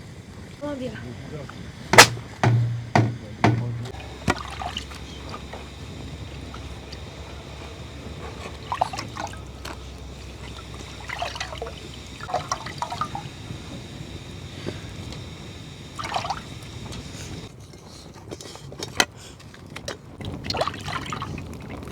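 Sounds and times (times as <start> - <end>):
liquid trickling and splashing: 1.9 - 17.5, 19.2 - 21.9
sharp knocks: 2.0 - 5.0.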